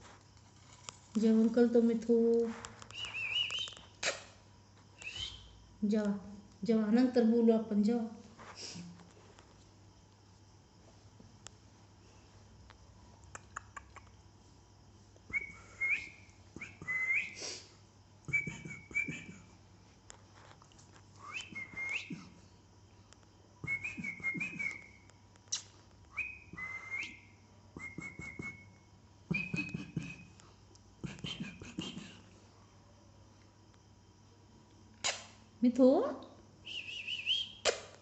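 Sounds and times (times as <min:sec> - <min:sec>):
soft rustling: 0:00.0 - 0:03.7, 0:08.1 - 0:12.8.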